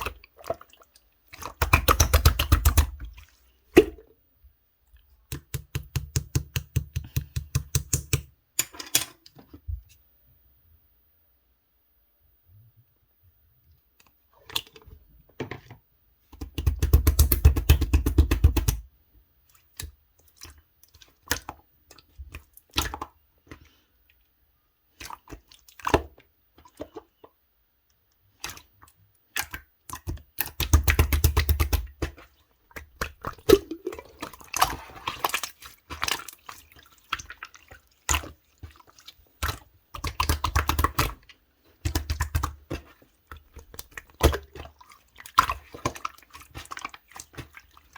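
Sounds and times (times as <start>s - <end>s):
slime squished with popping clicks: 1.6s - 3.0s.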